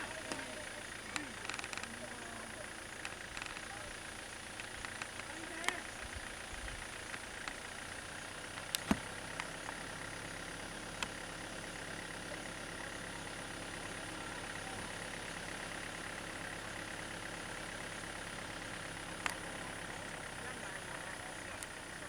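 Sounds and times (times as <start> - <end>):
vehicle engine idling: 0.0 - 22.0
sharp clicks: 1.1 - 2.0, 3.0 - 3.8, 4.5 - 5.8.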